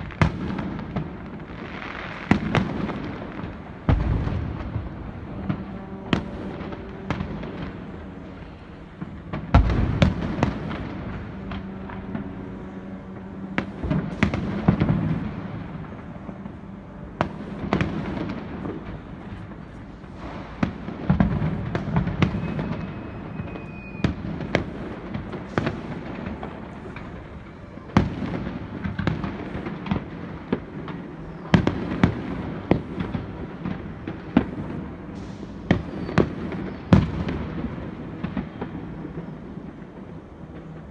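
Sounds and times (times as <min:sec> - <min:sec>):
firework crackling: 0:00.0 - 0:40.9
firework shells bursting: 0:17.2 - 0:39.7.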